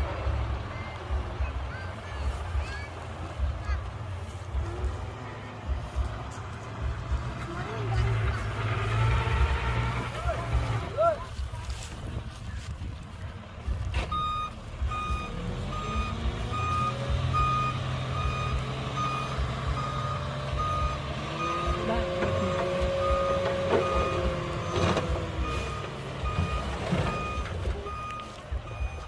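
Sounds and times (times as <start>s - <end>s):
diesel engine running: 0.0s - 29.0s
reversing alarm beeping: 14.1s - 29.0s.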